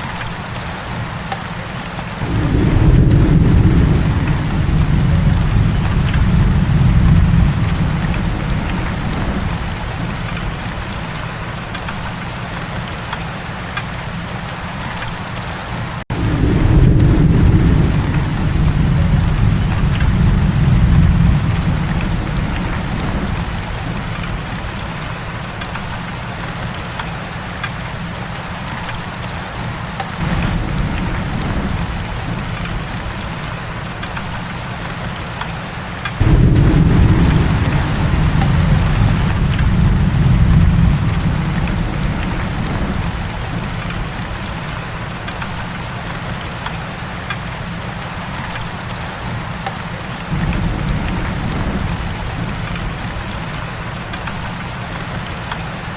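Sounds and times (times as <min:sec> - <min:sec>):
heavy rain falling: 0:00.0 - 0:55.9
deep low rumble: 0:36.2 - 0:43.6.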